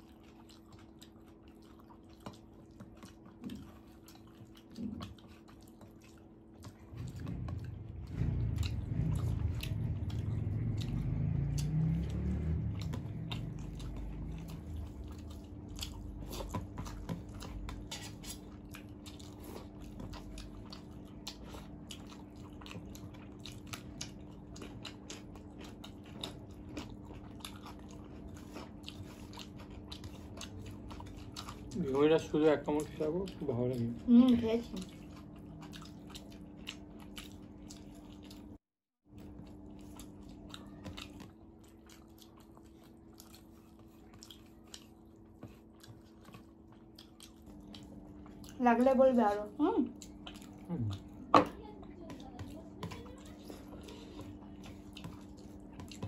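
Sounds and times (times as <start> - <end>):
faint steady hum: 0.0 - 56.0
people chewing and biting food: 0.0 - 56.0
low rumble: 6.9 - 14.6.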